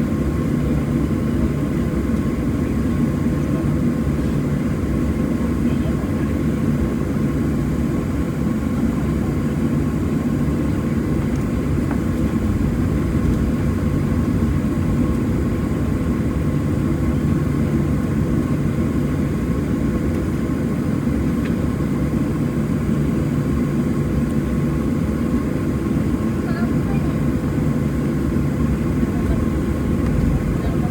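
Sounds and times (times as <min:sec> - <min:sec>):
aircraft cabin engine drone: 0:00.0 - 0:30.9
faint steady whine: 0:10.5 - 0:30.9.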